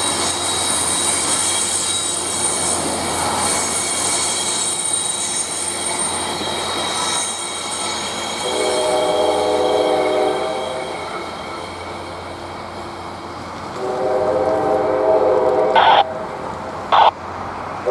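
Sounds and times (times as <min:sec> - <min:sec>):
train wheel squeal: 0:00.0 - 0:17.9
train air horn: 0:08.4 - 0:11.3, 0:13.8 - 0:17.2.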